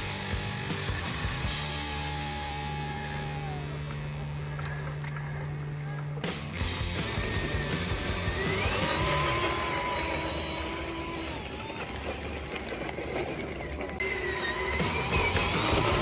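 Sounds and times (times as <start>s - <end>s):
high electric motor whine: 0.0s - 16.0s
low mechanical rumble: 0.0s - 16.0s.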